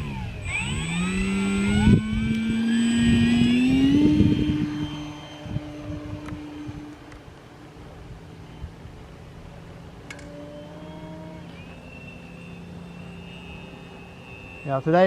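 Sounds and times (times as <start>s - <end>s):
wind buffeting microphone: 0.0s - 9.5s
electric rc plane motor whine: 0.0s - 15.0s.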